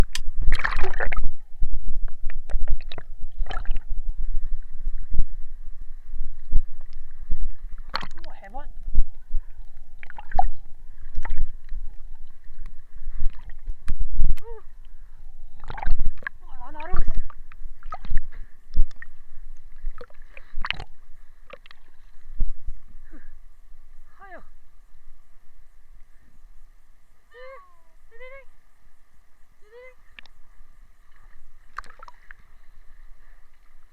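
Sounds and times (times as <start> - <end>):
low rumble: 0.0 - 27.3
muffled water splashing: 0.0 - 33.9.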